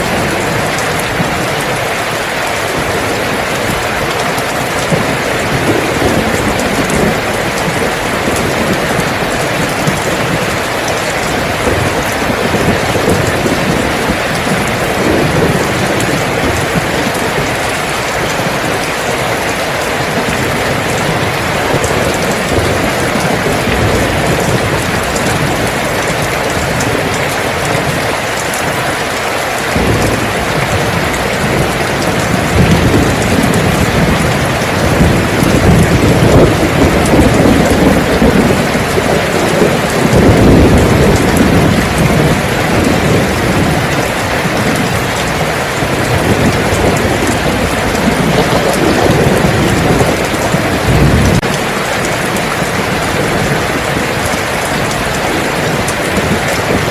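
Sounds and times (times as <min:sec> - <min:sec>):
heavy rain falling: 0:00.0 - 0:56.9
thunder rumbling: 0:00.0 - 0:56.9.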